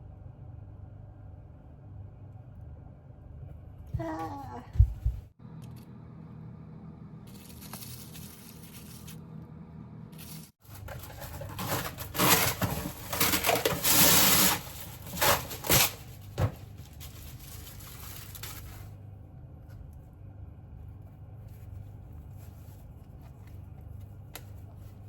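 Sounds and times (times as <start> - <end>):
steady low hum: 0.0 - 13.9, 14.6 - 25.0
rustling and tearing: 10.2 - 19.0.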